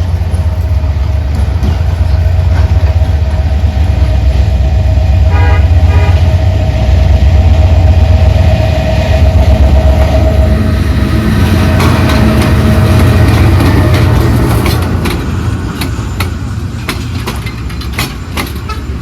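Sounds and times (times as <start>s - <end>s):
train rumbling: 0.0s - 19.0s
train horn toots: 5.0s - 13.9s
steady ringing tone: 6.3s - 12.8s.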